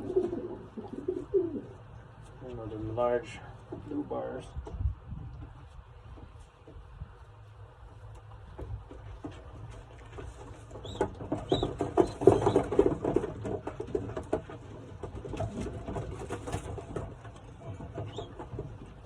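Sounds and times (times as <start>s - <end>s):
pigeons cooing: 0.0s - 2.0s, 10.7s - 17.0s, 17.7s - 19.0s
pigeon wings flapping: 8.9s - 19.0s.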